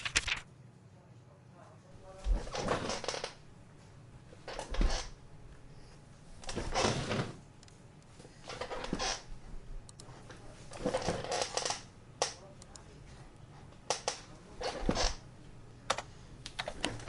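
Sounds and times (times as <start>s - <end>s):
low steady hum: 0.0s - 17.0s
clattering and rustling: 10.2s - 11.9s.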